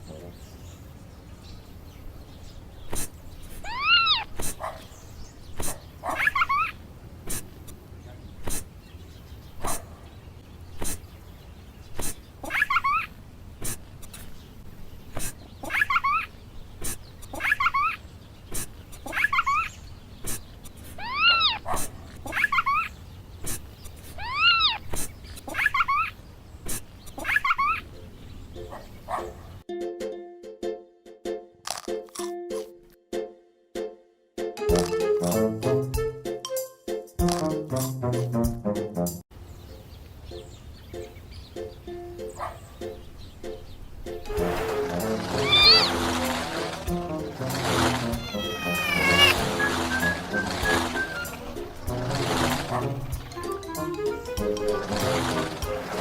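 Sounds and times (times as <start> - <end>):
kitten meowing: 3.6 - 4.3, 21.0 - 21.6, 24.2 - 24.8, 45.4 - 45.9, 48.1 - 49.4.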